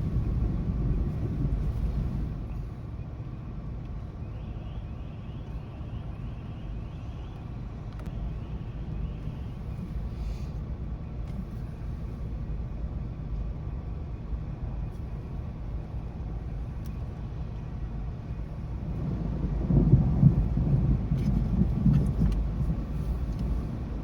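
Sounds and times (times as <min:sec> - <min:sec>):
roll of thunder: 0:00.0 - 0:02.6, 0:18.8 - 0:23.0
thunderstorm rumble: 0:00.0 - 0:03.4, 0:17.3 - 0:24.0.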